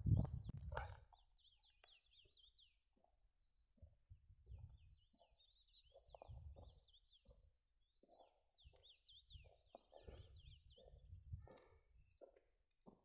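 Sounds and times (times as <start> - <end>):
low muffled thumps: 0.0 - 0.6
faint bird song: 0.0 - 13.0.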